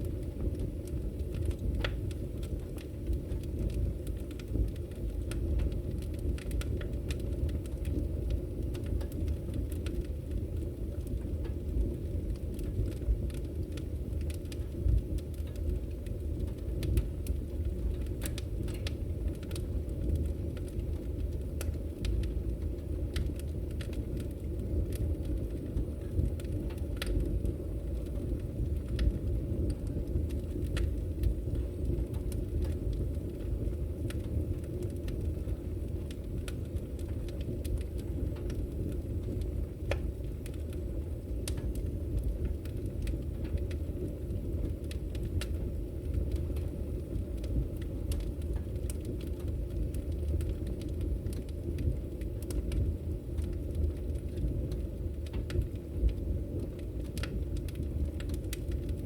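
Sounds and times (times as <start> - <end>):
crackles and pops from logs: 0.0 - 59.0
firewood burning: 0.0 - 59.0.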